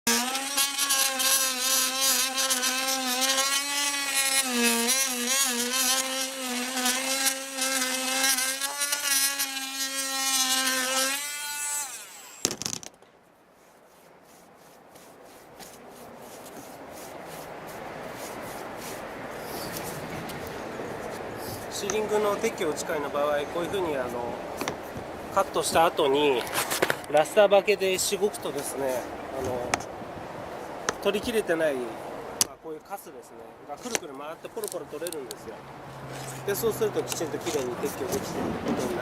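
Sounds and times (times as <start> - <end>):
power tool whining: 0.1 - 12.6
rubbing over a joint: 12.6 - 21.8.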